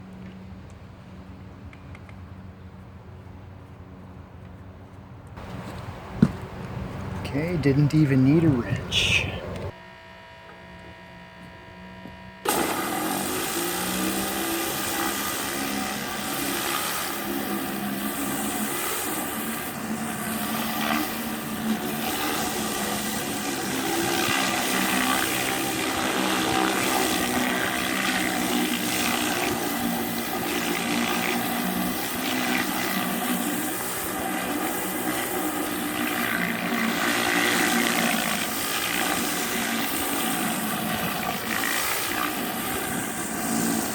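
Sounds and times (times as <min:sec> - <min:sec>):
pressure washer water jet hissing: 0:12.5 - 0:43.9.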